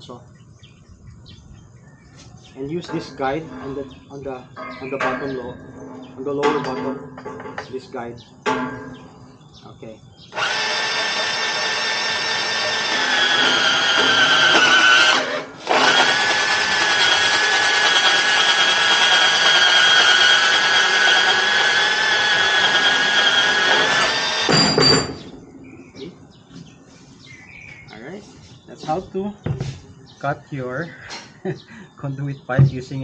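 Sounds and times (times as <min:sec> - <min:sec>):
band saw cutting metal pipe: 0:02.8 - 0:05.6, 0:10.3 - 0:25.3.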